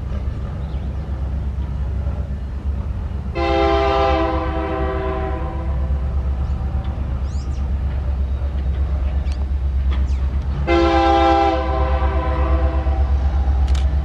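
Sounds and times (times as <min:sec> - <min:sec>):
diesel locomotive rumbling: 0:00.0 - 0:14.0
locomotive air horn blast: 0:03.3 - 0:05.9, 0:10.6 - 0:13.6.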